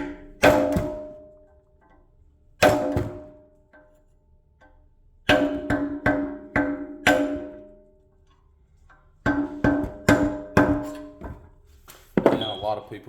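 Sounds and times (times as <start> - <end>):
hammer striking metal cap: 2.6 - 3.4, 5.3 - 7.9, 9.3 - 11.4.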